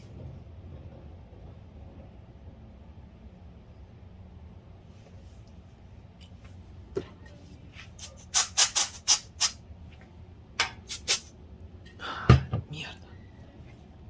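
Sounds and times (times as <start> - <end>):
parts clicking and scraping: 10.6 - 11.3.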